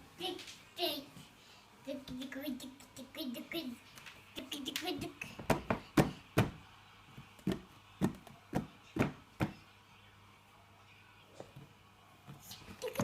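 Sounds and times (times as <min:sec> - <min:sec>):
child making clicking noises: 0:04.0 - 0:05.3.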